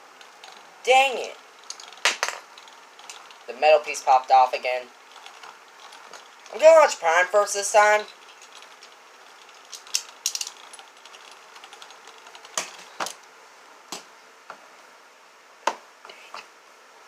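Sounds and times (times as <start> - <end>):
spinning tops clashing: 0.3 - 4.3, 7.7 - 13.2
quick run of clicks: 8.0 - 13.2.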